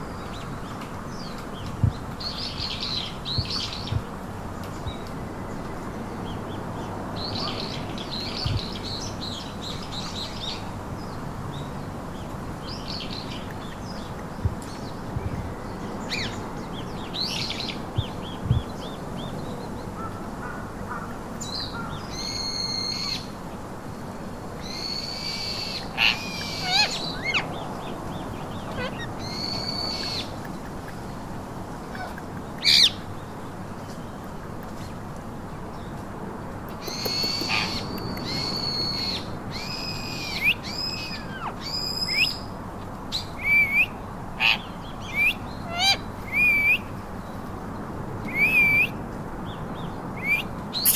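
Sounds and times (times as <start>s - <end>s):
parakeets chirping: 24.7s - 30.4s, 50.2s - 50.9s
parakeets squawking: 28.6s - 30.0s, 50.3s - 50.9s.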